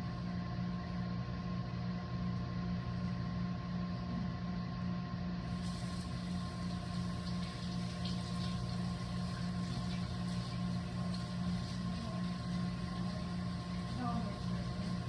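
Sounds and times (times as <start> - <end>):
microwave oven humming: 0.0 - 15.0
light hiss with clicks: 5.6 - 15.0.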